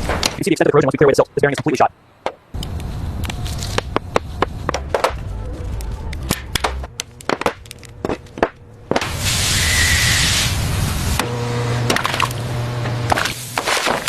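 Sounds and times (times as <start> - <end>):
loud steady hiss: 2.5 - 4.8, 9.0 - 11.4, 12.3 - 14.0
low rumble: 2.5 - 11.2
sharp clicks and knocks: 5.8 - 9.1.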